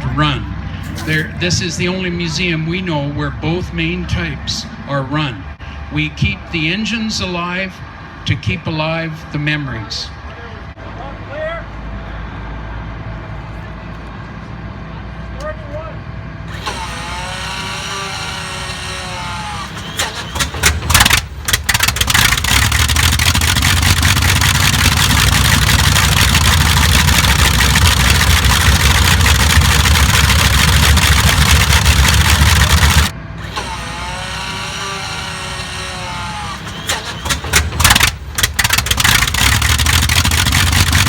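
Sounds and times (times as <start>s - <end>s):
wavering engine hum: 0.0s - 41.0s
aircraft piston engine starting: 0.7s - 8.6s, 16.4s - 41.0s.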